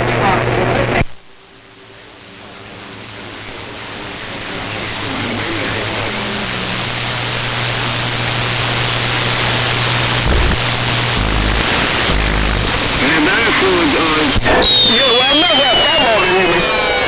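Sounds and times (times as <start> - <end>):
radio static hissing: 0.0 - 1.1, 7.4 - 17.0
low steady hum: 7.8 - 14.2.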